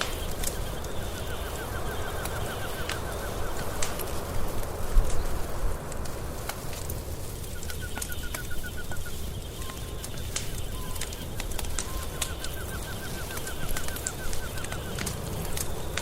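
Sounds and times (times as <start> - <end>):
bird rapid chirps: 0.0 - 3.9, 7.4 - 16.0
wood fire crackling and popping: 0.0 - 16.0.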